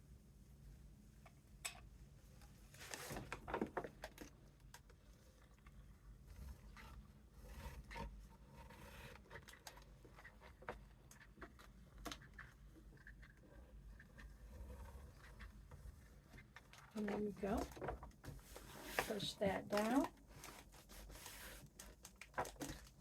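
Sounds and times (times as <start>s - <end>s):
paper bag rustling and scraping: 2.7s - 3.7s, 14.5s - 23.0s.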